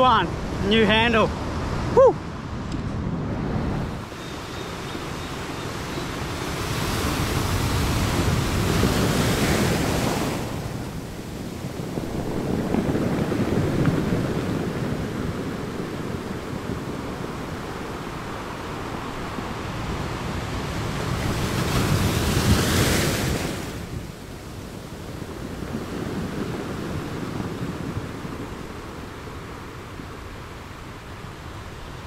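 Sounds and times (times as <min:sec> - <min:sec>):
small waves breaking on sand: 0:03.8 - 0:32.0.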